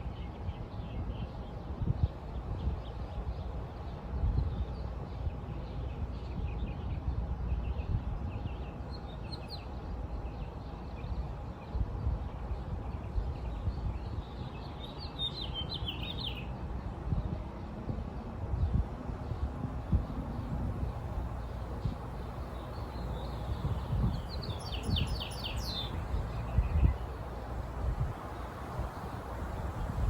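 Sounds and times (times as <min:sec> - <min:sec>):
small birds chirping: 0:12.5 - 0:16.6, 0:19.2 - 0:30.0
steady low rumble: 0:16.7 - 0:30.0.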